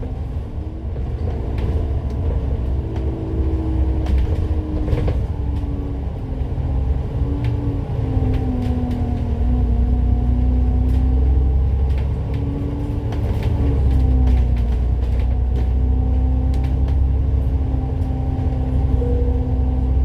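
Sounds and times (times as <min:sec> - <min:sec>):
bus engine rumble: 0:00.0 - 0:20.0
light rattles and ticks: 0:08.2 - 0:18.7.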